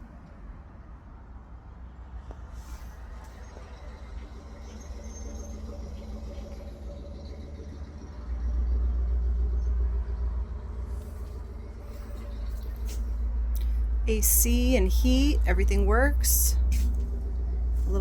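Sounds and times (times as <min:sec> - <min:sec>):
air conditioner humming: 0:10.8 - 0:18.0.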